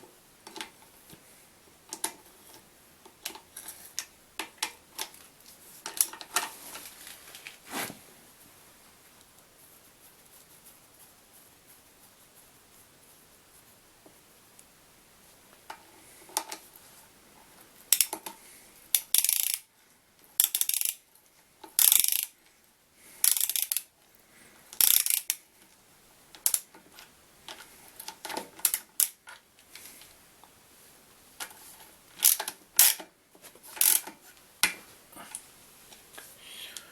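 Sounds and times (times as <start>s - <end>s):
ratchet wrench clicking: 17.9s - 18.1s, 18.9s - 19.7s, 20.4s - 21.0s, 21.8s - 22.3s, 23.2s - 23.9s, 24.8s - 25.4s, 32.2s - 33.0s, 33.8s - 34.1s.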